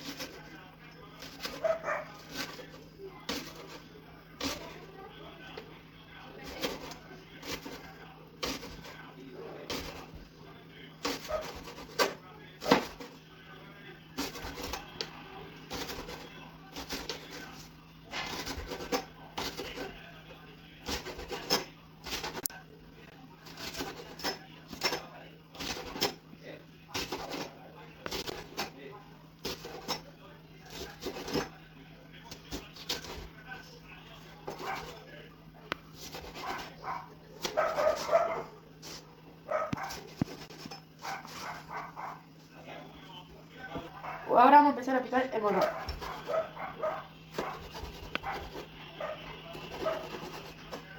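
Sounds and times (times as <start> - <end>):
dog barking: 1.5 - 2.2, 36.4 - 38.6, 39.5 - 40.1, 41.0 - 42.2, 44.0 - 44.3, 45.6 - 50.2
knife chopping on cutting board: 11.0 - 13.1, 18.2 - 19.9, 23.5 - 25.0, 30.7 - 31.5, 34.5 - 35.0, 37.4 - 38.2, 39.7 - 41.3, 45.6 - 46.5, 47.3 - 48.7, 49.6 - 50.9.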